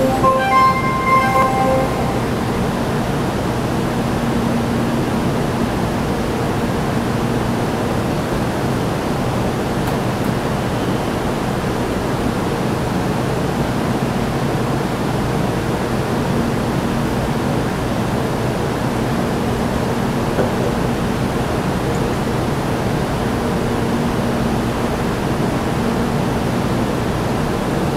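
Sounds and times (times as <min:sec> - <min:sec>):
platform chime: 0:00.0 - 0:03.2.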